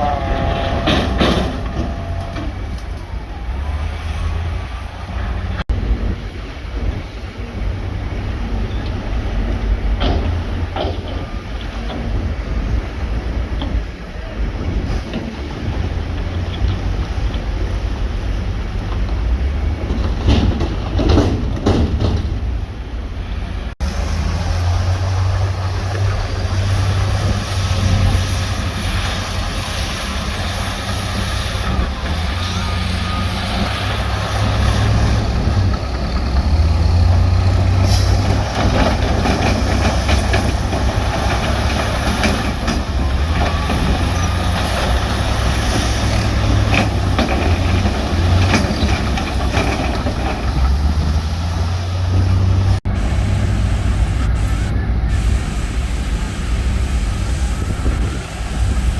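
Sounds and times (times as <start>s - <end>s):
machinery knocks and clanks: 0.0s - 5.6s, 8.7s - 13.9s, 18.8s - 22.8s, 23.9s - 54.4s
diesel machinery engine rumble: 0.0s - 58.9s.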